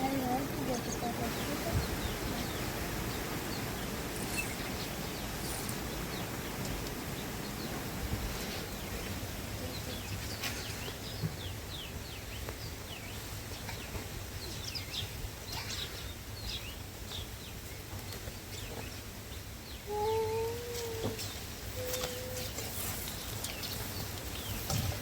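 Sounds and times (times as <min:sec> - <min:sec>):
low wind rumble: 0:00.0 - 0:19.9
small birds chirping: 0:00.0 - 0:25.0
lower held bird call: 0:21.7 - 0:22.7.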